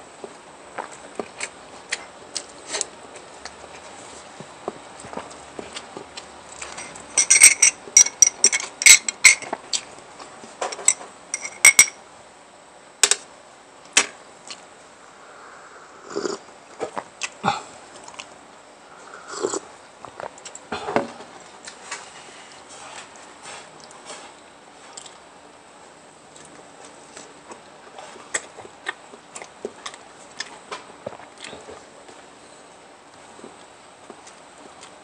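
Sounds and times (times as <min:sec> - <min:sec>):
cutlery clinking on a plate: 0:06.8 - 0:09.5, 0:10.6 - 0:12.0
wet chewing sounds: 0:16.7 - 0:18.3, 0:24.9 - 0:25.2, 0:26.3 - 0:31.9.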